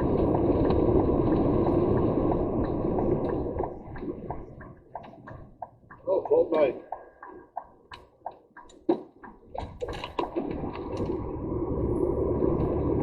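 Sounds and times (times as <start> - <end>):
road noise: 0.0 - 13.0
lorry engine rumble: 9.8 - 13.0.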